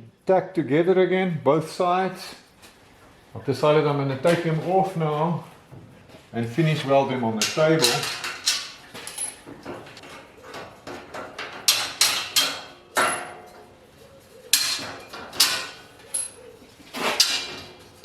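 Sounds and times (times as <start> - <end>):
metallic knocks and clanks: 7.4 - 10.0, 10.6 - 13.6, 14.5 - 16.3.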